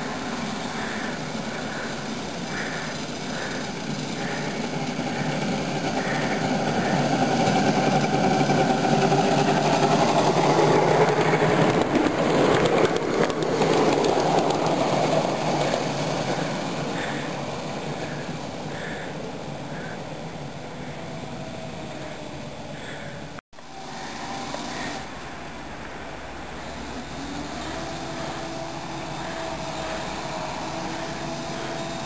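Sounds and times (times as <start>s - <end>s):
miniature train clattering on track: 0.2s - 19.5s.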